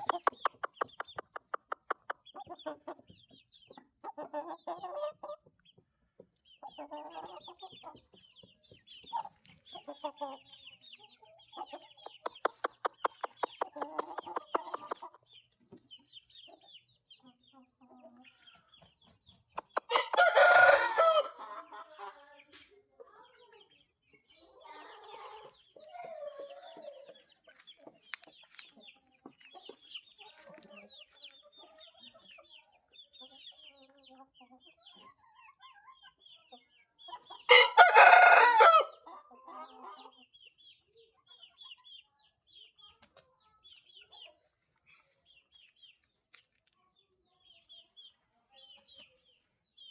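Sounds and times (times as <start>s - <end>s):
chicken clucking: 0.0s - 49.9s
small birds chirping: 0.0s - 49.9s
rooster crowing: 19.9s - 21.3s, 37.5s - 39.0s.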